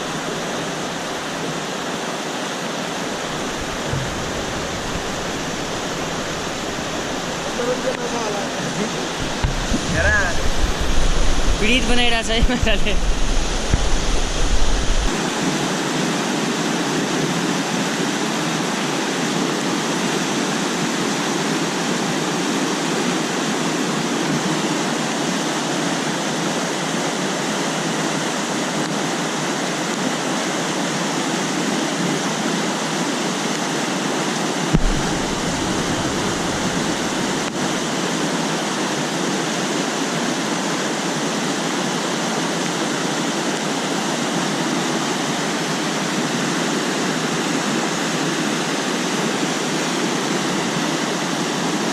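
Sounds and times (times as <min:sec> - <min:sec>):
river rushing: 0:00.0 - 0:51.9
brief low thump: 0:03.1 - 0:08.0, 0:08.8 - 0:11.6, 0:34.8 - 0:37.6.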